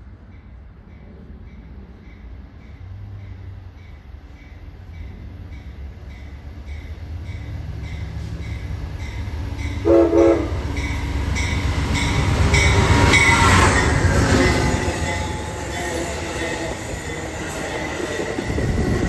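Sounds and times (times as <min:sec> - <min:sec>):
train rumble: 0:00.0 - 0:19.0
train horn blasts: 0:09.6 - 0:16.8.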